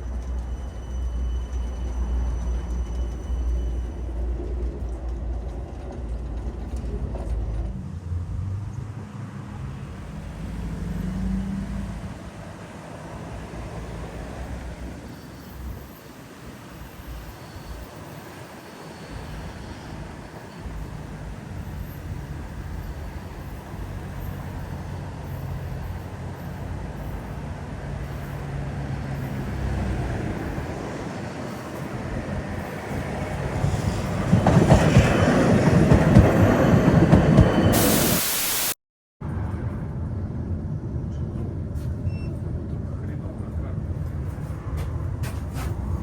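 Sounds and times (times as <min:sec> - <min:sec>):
wheels rumbling on rails: 0:00.0 - 0:38.1, 0:39.2 - 0:46.0
short burst of hiss: 0:37.8 - 0:38.8.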